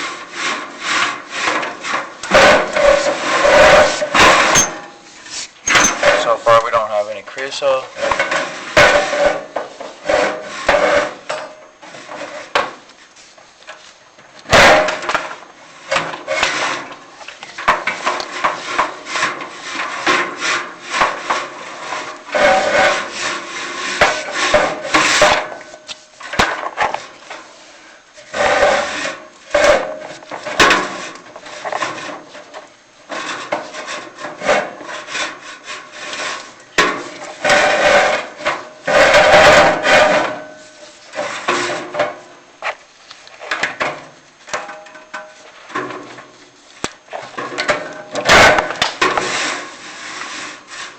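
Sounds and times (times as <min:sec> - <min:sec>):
camera scraping metal flue: 0:00.0 - 0:06.8, 0:15.8 - 0:27.6, 0:28.2 - 0:41.9.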